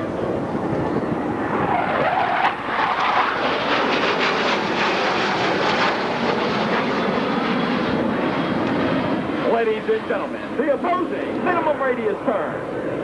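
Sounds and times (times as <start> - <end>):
jet engines flying past: 0.0 - 13.0
jet noise crackle: 1.4 - 7.0.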